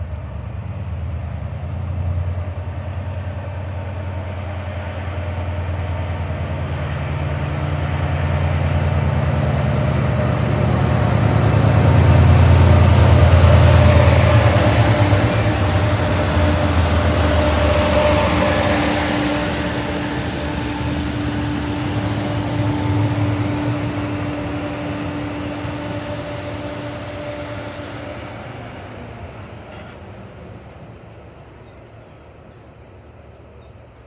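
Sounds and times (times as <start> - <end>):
diesel train rumble: 0.0 - 34.0
brief hiss: 24.0 - 28.5.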